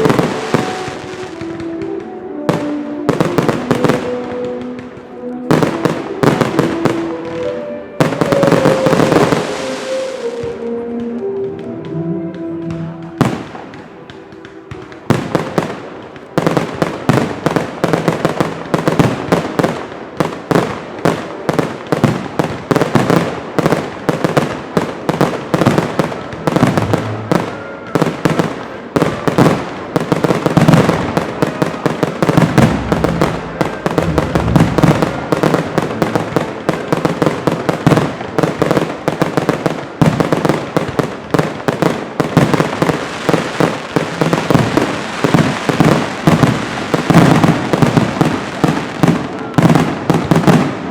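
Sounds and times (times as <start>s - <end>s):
fireworks shells bursting: 0.0s - 11.8s, 32.1s - 38.0s.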